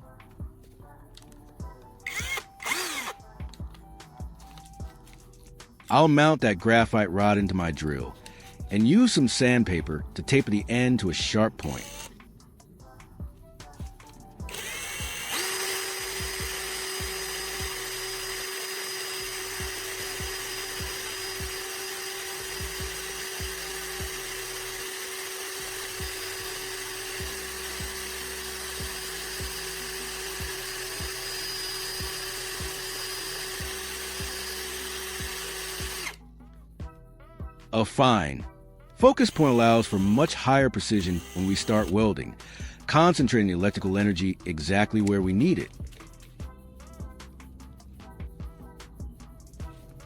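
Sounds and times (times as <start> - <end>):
electric drill whining: 1.2 - 6.0, 8.0 - 12.3, 13.6 - 36.2, 39.1 - 44.2.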